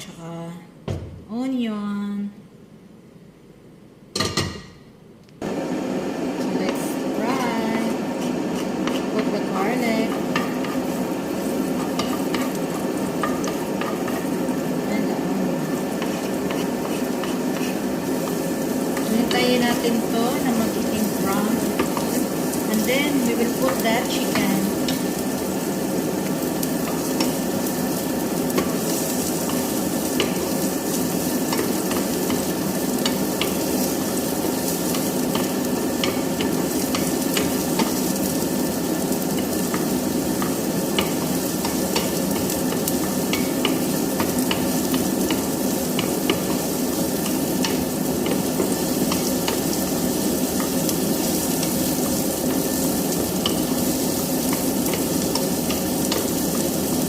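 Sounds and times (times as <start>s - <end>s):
garlic and onion sizzling: 5.4s - 57.0s.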